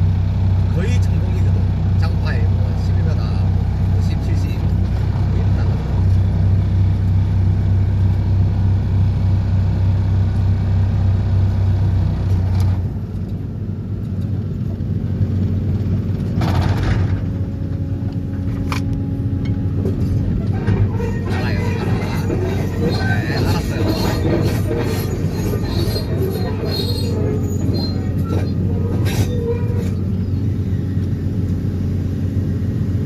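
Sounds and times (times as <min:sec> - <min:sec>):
engine running: 0:00.0 - 0:33.0
vibratory pile driver humming: 0:16.2 - 0:33.0.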